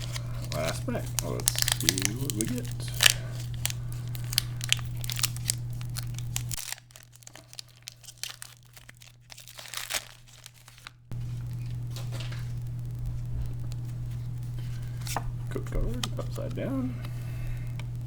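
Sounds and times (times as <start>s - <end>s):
foil wrapper crinkling and tearing: 0.0s - 12.6s.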